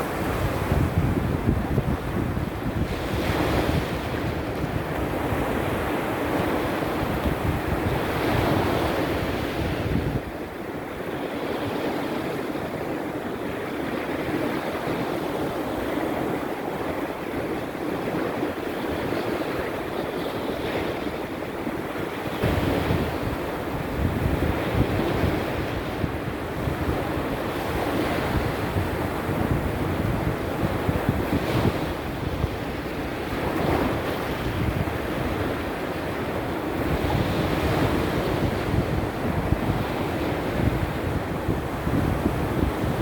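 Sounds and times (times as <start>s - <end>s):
sea surf breaking on shore: 0.0s - 43.0s
wind buffeting microphone: 0.0s - 43.0s.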